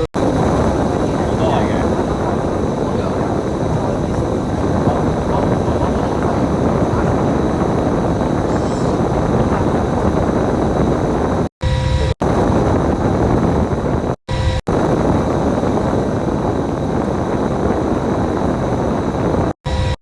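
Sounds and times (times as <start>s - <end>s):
bus engine and road noise: 0.0s - 11.3s.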